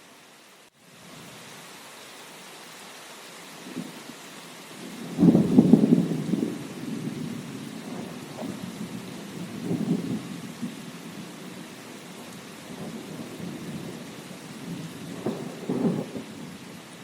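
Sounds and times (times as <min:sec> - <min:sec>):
steady rain falling: 0:00.0 - 0:17.0
low thunder rumbles: 0:04.8 - 0:16.7
sharp thunder crack: 0:15.1 - 0:16.2.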